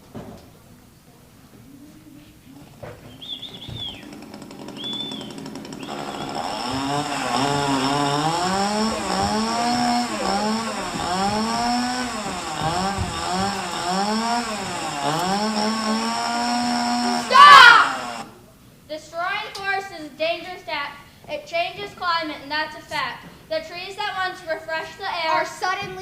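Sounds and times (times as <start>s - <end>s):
chainsaw revving: 3.3s - 18.3s.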